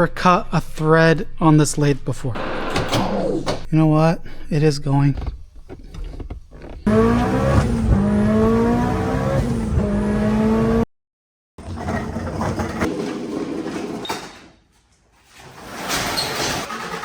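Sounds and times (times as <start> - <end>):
rough car noise: 5.6 - 10.8
car engine accelerating: 6.2 - 10.9.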